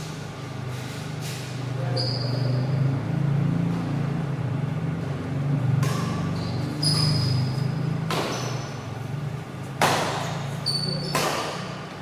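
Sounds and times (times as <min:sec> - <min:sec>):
low hum of hall: 0:00.0 - 0:12.0
shoes squeaking on court floor: 0:00.7 - 0:02.9, 0:06.1 - 0:11.8
rackets hitting shuttlecock: 0:05.8 - 0:08.8, 0:09.6 - 0:12.0.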